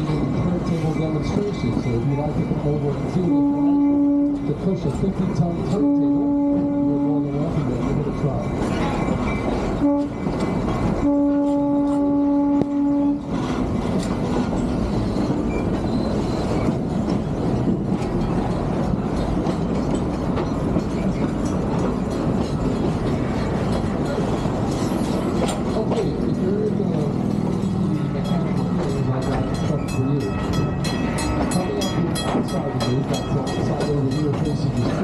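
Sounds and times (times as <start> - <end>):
train rumbling and rattling on rails: 0.0 - 35.0
train horn: 3.2 - 4.5, 5.7 - 7.3, 9.8 - 10.3, 11.0 - 13.3.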